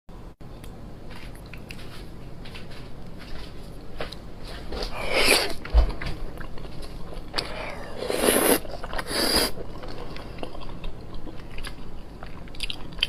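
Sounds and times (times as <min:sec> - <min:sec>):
wet clicks of chewing meat: 0:09.6 - 0:13.0.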